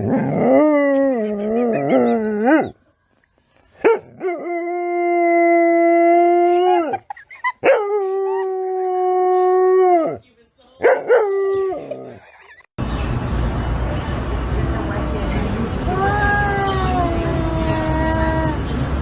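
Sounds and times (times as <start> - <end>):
dog howling: 0.0 - 2.8.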